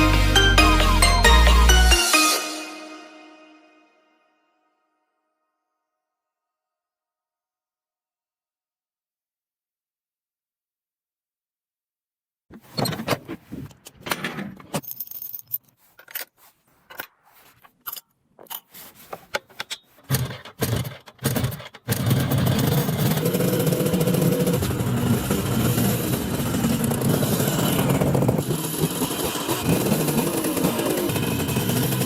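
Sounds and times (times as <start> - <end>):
clicks knocks and scrapes: 12.5 - 24.6
motorcycle engine running: 20.1 - 32.0.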